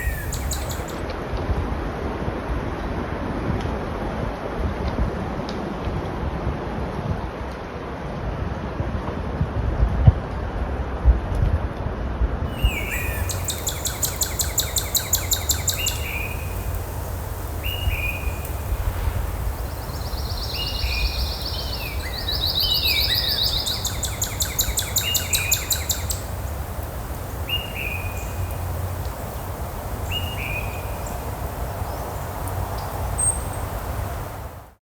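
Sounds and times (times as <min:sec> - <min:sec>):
birds chirping: 0:00.0 - 0:01.0, 0:12.5 - 0:34.3
high buzzing bird trills: 0:00.0 - 0:01.0, 0:12.6 - 0:29.3.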